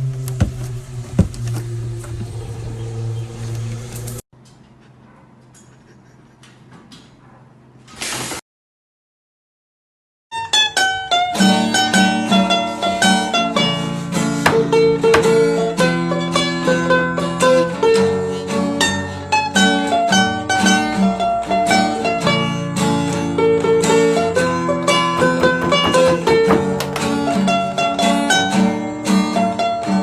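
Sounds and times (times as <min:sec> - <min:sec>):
fast-picked plucked-string music: 0:24.2 - 0:28.4.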